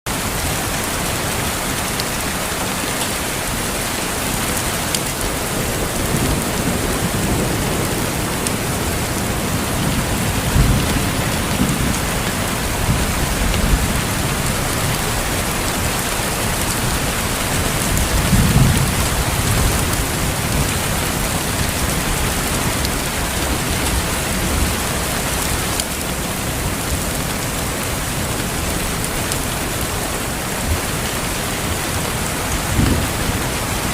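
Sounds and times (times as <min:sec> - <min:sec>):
steady rainfall: 0:00.1 - 0:33.9
low rolls of thunder: 0:05.4 - 0:24.8, 0:32.6 - 0:33.9.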